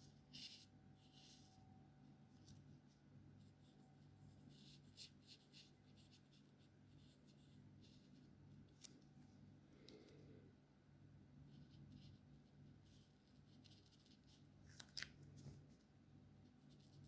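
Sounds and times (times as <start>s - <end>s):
marker scratching on paper: 3.4s - 8.3s.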